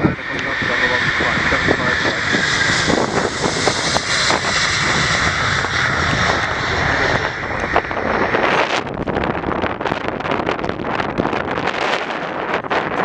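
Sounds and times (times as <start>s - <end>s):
jet engines roaring on takeoff: 0.0s - 13.0s.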